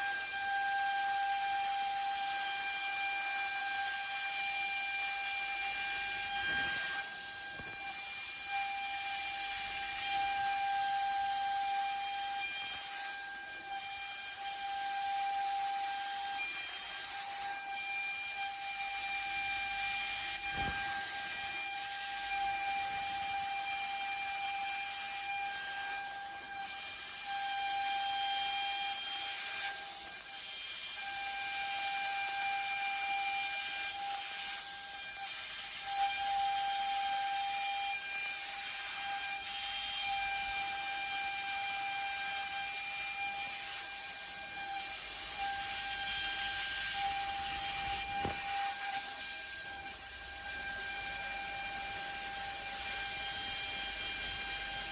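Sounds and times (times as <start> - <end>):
router spindle whining: 42.4 - 54.9.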